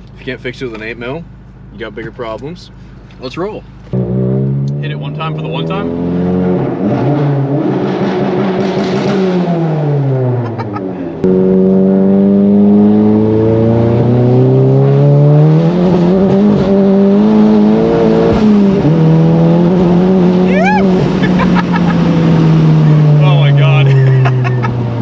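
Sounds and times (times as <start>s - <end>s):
car engine accelerating: 3.6s - 25.0s.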